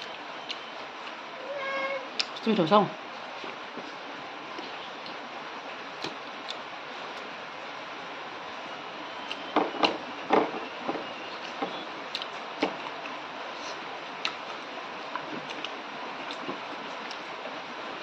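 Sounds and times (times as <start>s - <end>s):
person chewing with wet clicks: 0.0s - 1.2s, 2.2s - 2.4s, 4.5s - 5.2s, 6.0s - 7.3s, 11.4s - 13.2s, 14.1s - 17.3s.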